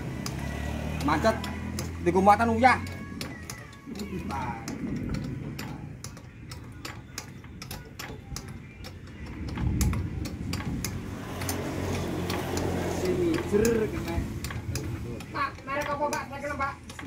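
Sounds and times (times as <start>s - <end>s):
ratchet wrench clicking: 0.0s - 17.0s.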